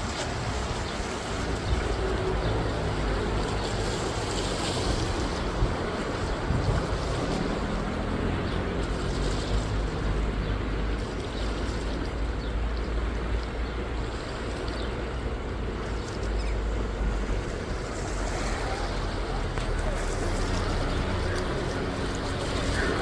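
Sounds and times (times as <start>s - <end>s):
low boat motor hum: 0.0s - 23.0s
water rushing: 0.0s - 23.0s
wind buffeting microphone: 0.0s - 23.0s.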